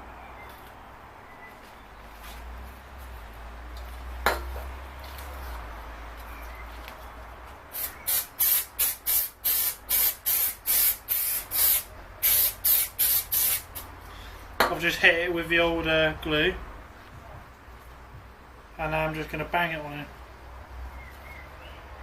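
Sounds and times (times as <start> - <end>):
spray can hissing bursts: 7.7 - 13.9.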